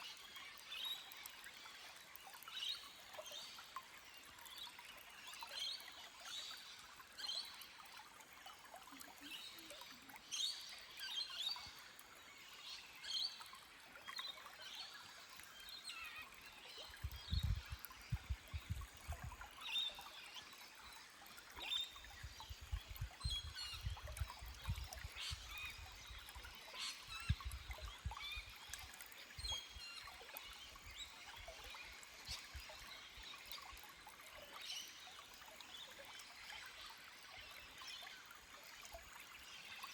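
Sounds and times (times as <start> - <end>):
stream trickling over rock: 0.0 - 39.9
small birds chirping: 14.3 - 20.6, 21.3 - 33.8.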